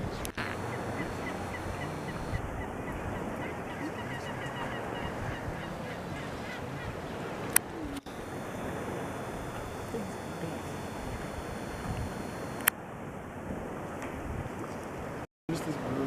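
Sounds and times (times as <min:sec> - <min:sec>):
birds calling: 0:00.0 - 0:12.7
steady background hiss: 0:00.0 - 0:12.7.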